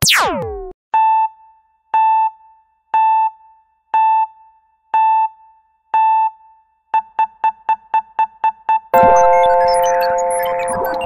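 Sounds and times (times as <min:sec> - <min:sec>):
electronic beeps: 0:09.0 - 0:11.0.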